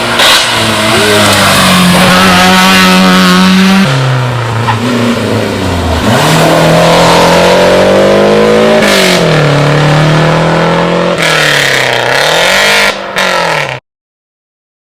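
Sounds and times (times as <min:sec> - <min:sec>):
rally car engine high-revving: 0:00.0 - 0:13.8.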